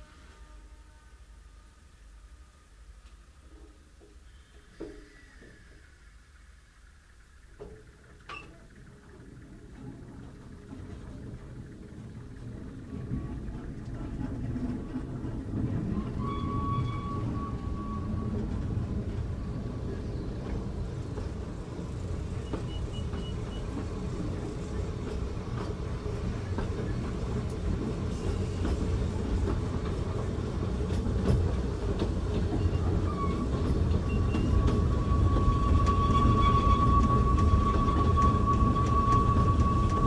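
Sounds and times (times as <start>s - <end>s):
train running gear rumbling: 2.9s - 40.0s
thin high squeal: 15.9s - 18.4s.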